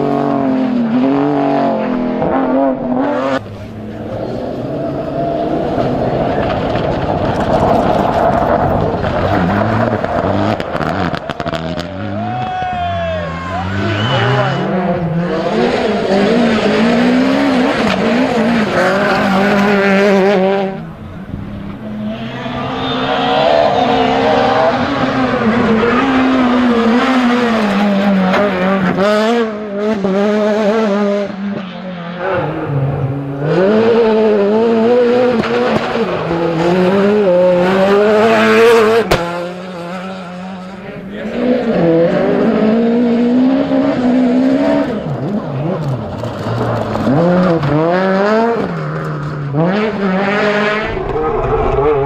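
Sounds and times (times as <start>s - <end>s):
rally car engines revving: 0.0s - 52.0s
sharp crack: 39.0s - 39.4s.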